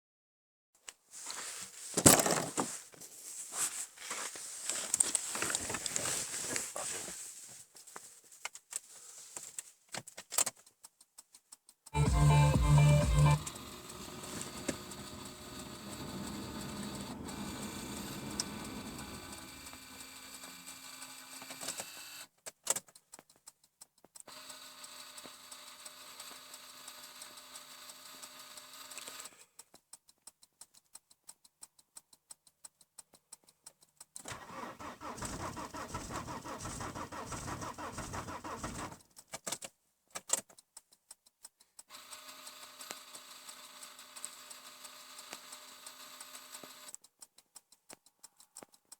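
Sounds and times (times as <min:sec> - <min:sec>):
diesel engine cranking: 0:12.0 - 0:20.4, 0:34.3 - 0:39.0.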